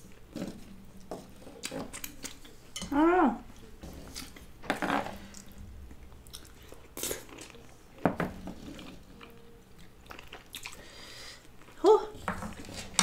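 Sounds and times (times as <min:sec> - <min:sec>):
chewing and mouth sounds: 0:01.3 - 0:02.6, 0:05.3 - 0:07.8, 0:08.6 - 0:11.8.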